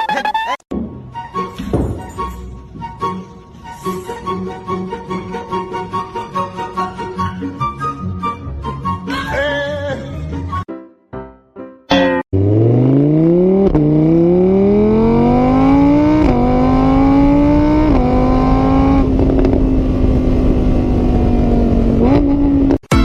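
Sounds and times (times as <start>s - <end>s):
engine accelerating: 12.4s - 22.8s.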